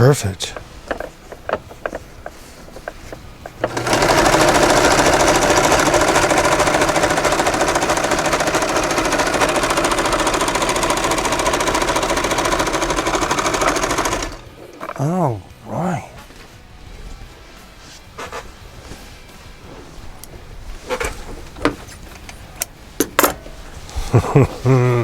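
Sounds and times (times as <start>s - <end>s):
sewing machine clattering: 0.5s - 14.9s.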